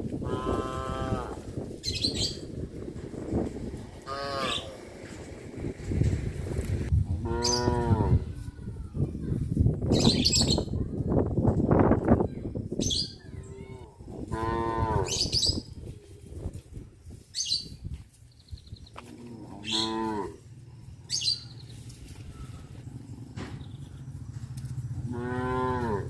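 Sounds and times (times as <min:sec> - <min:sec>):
cattle mooing: 0:00.2 - 0:01.4, 0:04.0 - 0:04.8, 0:19.1 - 0:20.4, 0:25.0 - 0:26.0.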